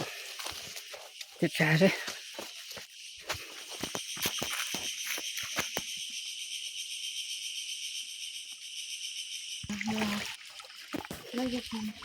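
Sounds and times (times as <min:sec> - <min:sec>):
crunching footsteps: 0:00.0 - 0:05.9
insects buzzing: 0:00.0 - 0:12.0.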